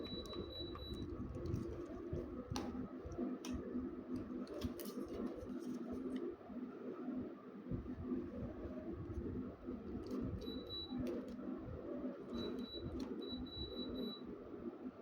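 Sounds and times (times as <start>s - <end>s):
air conditioner humming: 0.0s - 15.0s
faint high whine: 6.8s - 14.6s.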